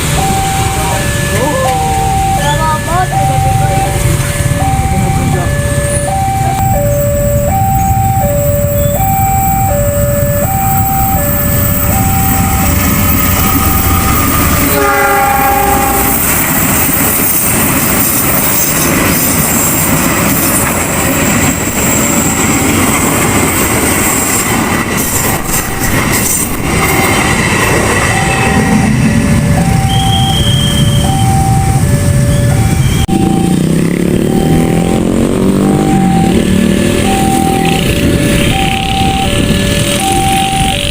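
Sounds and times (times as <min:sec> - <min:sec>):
railroad crossing warning signal: 0:00.0 - 0:40.9
train horn: 0:14.4 - 0:16.4
train wheels clattering over rails: 0:16.2 - 0:29.8.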